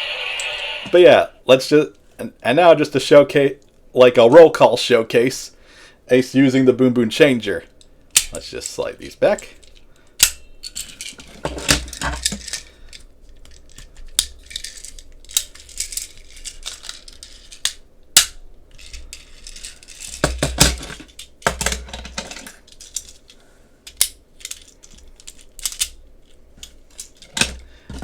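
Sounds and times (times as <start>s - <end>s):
plastic toy parts snapping: 8.2s - 8.4s, 12.2s - 18.4s, 23.9s - 26.0s.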